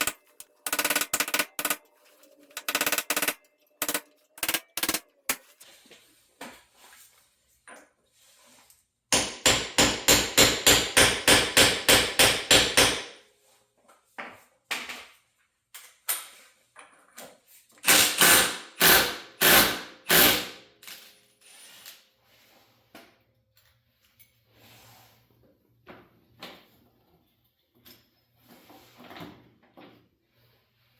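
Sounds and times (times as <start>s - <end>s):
tools knocking and clicking: 0.0s - 5.6s.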